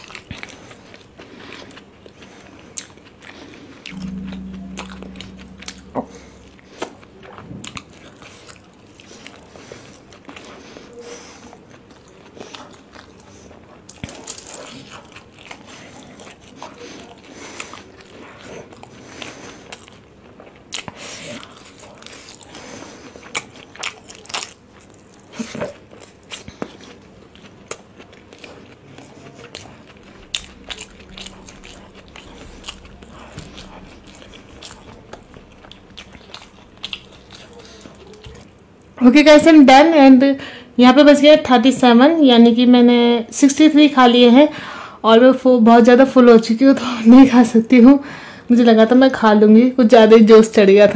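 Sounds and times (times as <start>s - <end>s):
chewing soft food: 0.0s - 5.9s, 7.6s - 39.0s.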